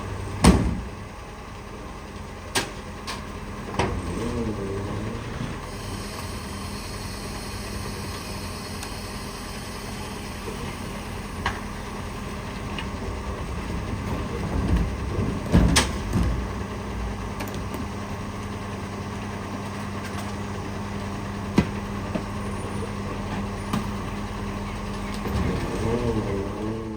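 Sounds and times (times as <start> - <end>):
garbage truck idling hum: 0.0 - 26.9
loud clunk with rumble: 0.3 - 1.1, 2.5 - 4.4, 12.6 - 18.0, 21.4 - 22.4, 23.1 - 25.9.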